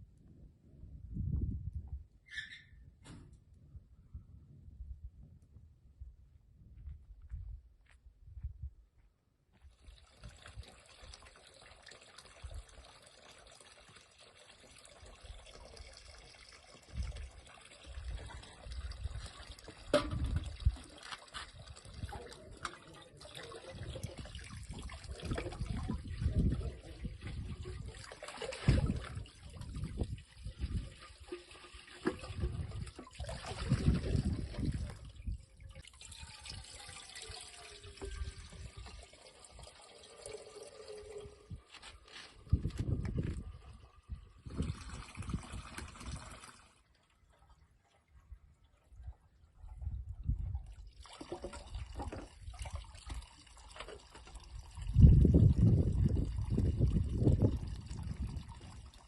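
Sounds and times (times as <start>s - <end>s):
water trickling and splashing: 9.6s - 59.0s.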